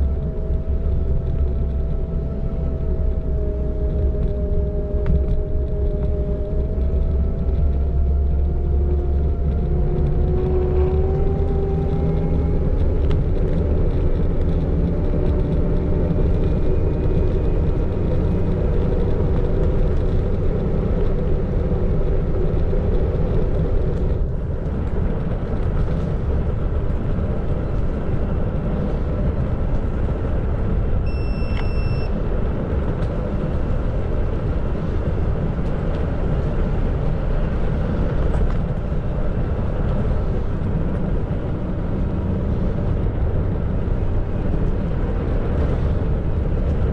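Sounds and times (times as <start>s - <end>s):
tyres and wind rumbling: 0.0s - 46.9s
short high beep: 31.1s - 32.2s.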